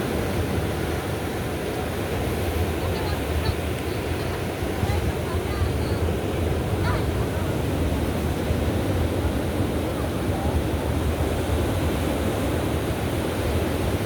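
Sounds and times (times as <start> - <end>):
ocean surf on sandy beach: 0.0 - 14.0
faint voices of people: 1.6 - 14.0.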